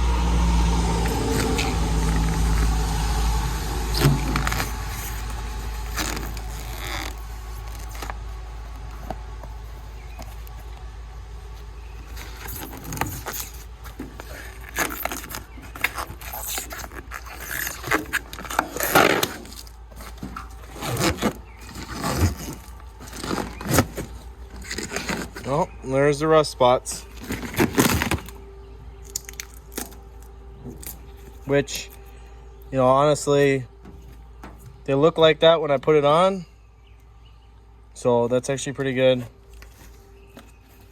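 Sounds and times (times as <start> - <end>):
low rumble: 0.0 - 35.1
rubber coating peeling off: 0.4 - 10.8, 11.4 - 25.8, 27.0 - 28.4.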